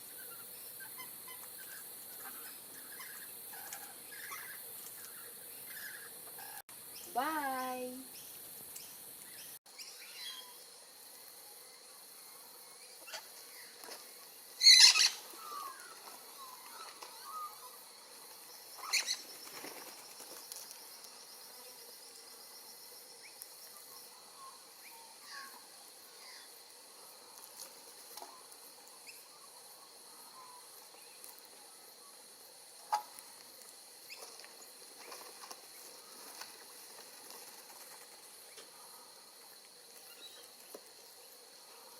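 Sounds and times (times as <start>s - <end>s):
high insect drone: 0.0s - 41.9s
parrots chirping faintly: 0.0s - 41.9s
parrots flapping wings: 18.8s - 20.8s, 34.1s - 38.6s.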